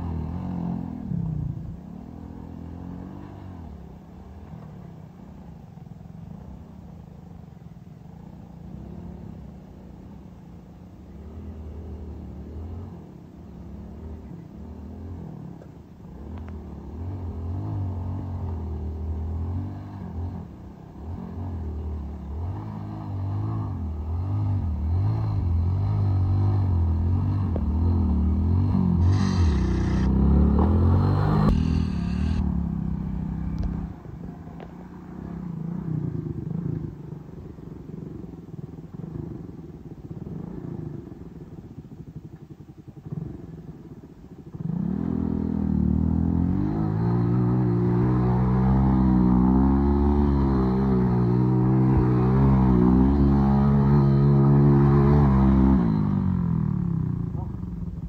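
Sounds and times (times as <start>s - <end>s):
motorcycle engine revving: 0.0s - 5.5s, 11.1s - 58.0s
wheel spinning in loose dirt: 28.6s - 32.4s
short hiss: 29.0s - 30.2s.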